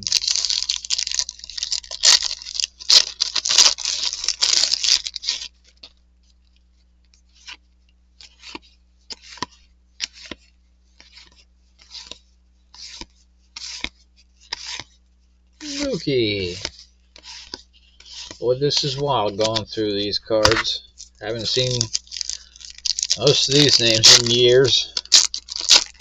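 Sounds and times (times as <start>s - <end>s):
wrapper crinkling: 0.0s - 5.9s, 15.6s - 26.0s
cards snapping as flipped: 12.8s - 14.9s, 15.8s - 19.6s.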